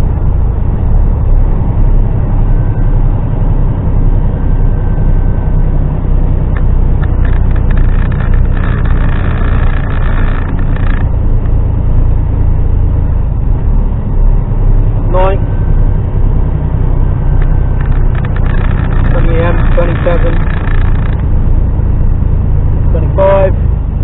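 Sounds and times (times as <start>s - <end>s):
lorry diesel engine and road noise: 0.0s - 24.0s
higher-pitched noise: 7.0s - 11.2s, 17.2s - 21.3s.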